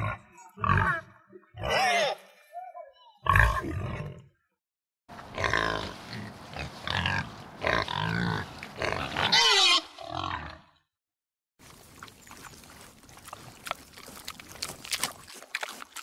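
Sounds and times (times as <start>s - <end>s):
pigs grunting: 5.2s - 10.7s
pigs squealing: 6.9s - 10.6s.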